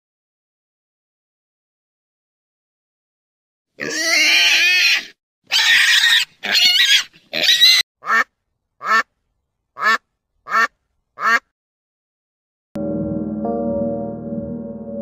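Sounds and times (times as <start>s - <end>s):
pigs squealing: 3.8s - 7.8s
duck quacking: 7.4s - 9.1s, 9.8s - 11.5s.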